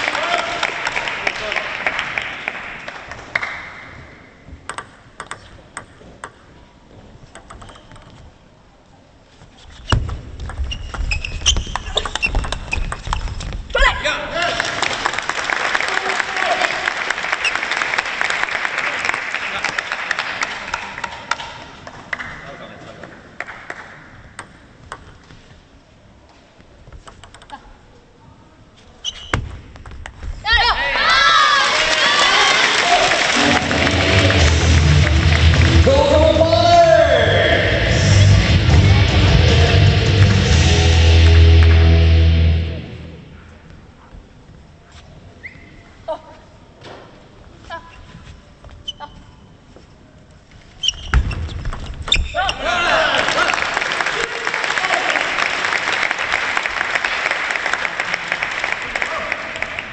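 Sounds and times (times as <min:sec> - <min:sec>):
crowd applause: 0:00.0 - 0:03.7, 0:14.4 - 0:21.4, 0:31.4 - 0:36.4, 0:38.7 - 0:42.4, 0:52.7 - 0:59.9
table tennis ball clicks: 0:04.7 - 0:06.5, 0:07.3 - 0:08.2, 0:23.7 - 0:25.2, 0:27.0 - 0:27.7
shoes squeaking on court floor: 0:09.3 - 0:13.8, 0:28.7 - 0:30.4, 0:44.8 - 0:46.0, 0:47.6 - 0:52.7
short high squeak: 0:29.0 - 0:29.4, 0:50.8 - 0:51.5.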